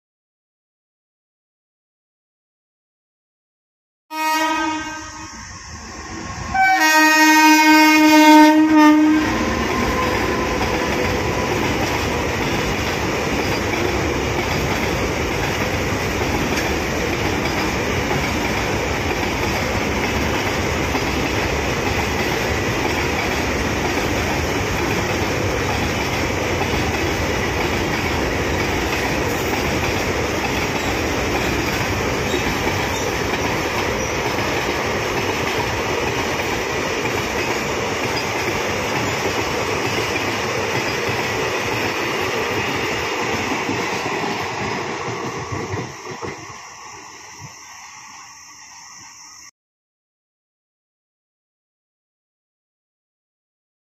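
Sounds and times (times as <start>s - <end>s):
locomotive horn: 4.1s - 5.4s, 6.5s - 11.7s
train wagons rolling on rails: 9.2s - 49.1s.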